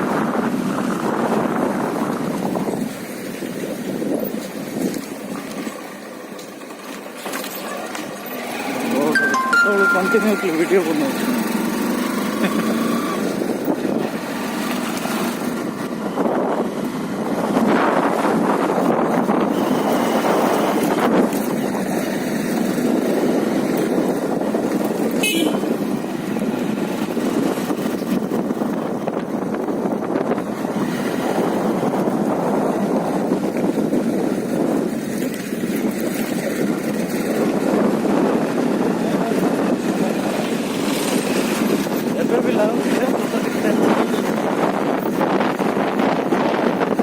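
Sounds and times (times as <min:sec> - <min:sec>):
wind noise on microphone: 0:00.0 - 0:06.0, 0:11.1 - 0:47.0
motorcycle engine running: 0:08.0 - 0:09.2, 0:09.9 - 0:35.0.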